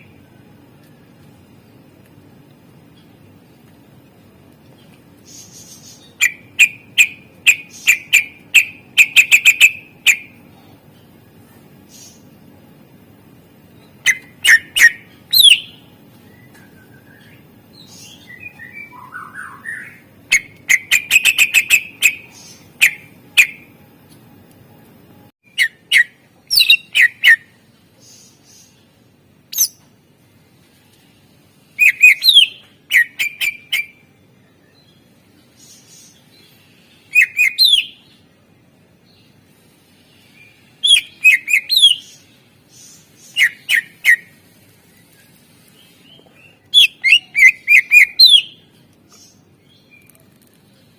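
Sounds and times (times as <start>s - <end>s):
low background hum: 0.0s - 50.9s
bird singing whistles and chatter: 14.0s - 17.4s, 31.8s - 34.0s, 37.1s - 38.0s, 40.8s - 42.2s, 42.9s - 44.4s, 45.9s - 48.6s.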